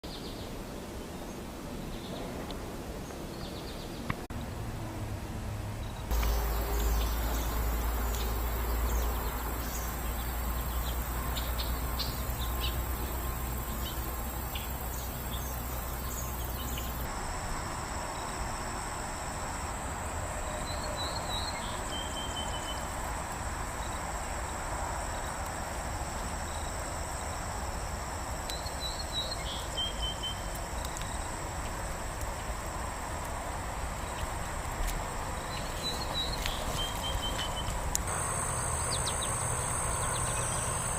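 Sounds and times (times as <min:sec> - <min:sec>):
low rumble and hiss: 0:00.1 - 0:40.9
bird singing: 0:05.8 - 0:17.1, 0:20.4 - 0:22.9, 0:28.5 - 0:31.3, 0:35.4 - 0:40.9
high-pitched insect trilling: 0:06.1 - 0:22.9, 0:35.4 - 0:40.9.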